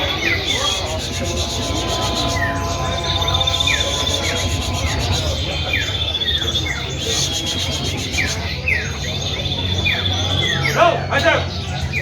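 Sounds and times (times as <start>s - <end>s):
low hum: 0.0s - 7.6s
steady high whine: 0.0s - 7.9s
bird calling downward notes: 0.0s - 8.3s.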